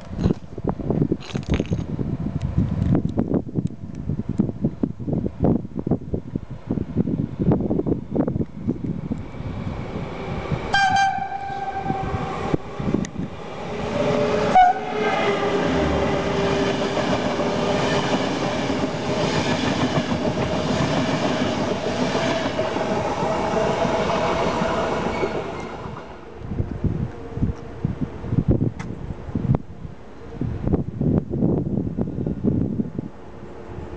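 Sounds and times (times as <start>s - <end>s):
electric train passing: 1.9s - 33.9s
train horn blast: 10.7s - 12.4s, 14.3s - 16.0s.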